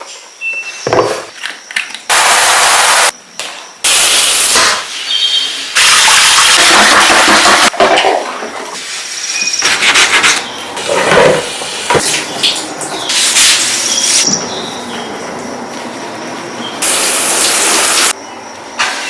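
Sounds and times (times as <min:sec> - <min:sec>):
water spraying from shower head: 0:16.8 - 0:18.2.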